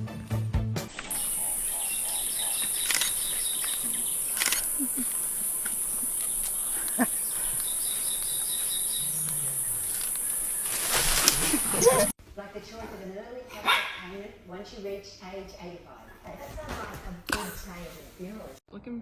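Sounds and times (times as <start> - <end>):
faint rapid chirping: 0.9 - 12.1
soft clicks: 1.0 - 10.3
steady high hiss: 1.0 - 12.1.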